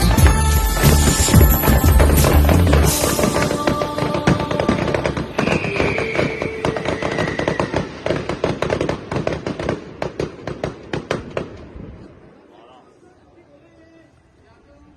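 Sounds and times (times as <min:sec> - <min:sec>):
fireworks crackling: 0:00.0 - 0:12.1
high falling whistle: 0:05.3 - 0:08.0.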